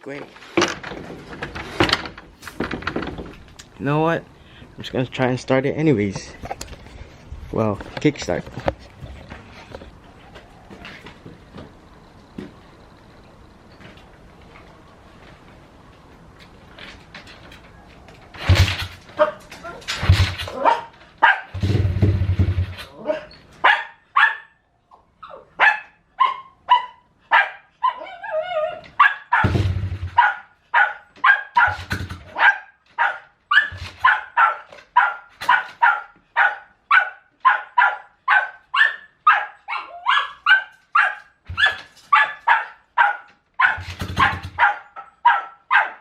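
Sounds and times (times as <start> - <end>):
dog barking: 19.2 - 19.8, 20.5 - 21.6, 23.0 - 24.6, 25.6 - 46.0.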